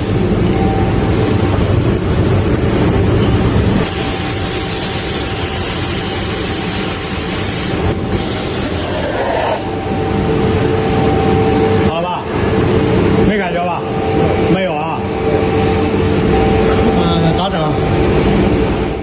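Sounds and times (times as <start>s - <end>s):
sandblaster hissing: 3.8s - 9.7s.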